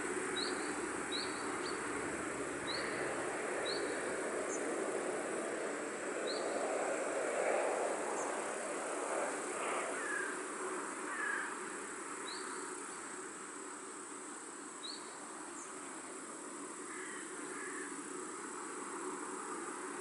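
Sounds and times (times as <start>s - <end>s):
background hiss: 0.0s - 20.0s
insect buzz: 0.0s - 20.0s.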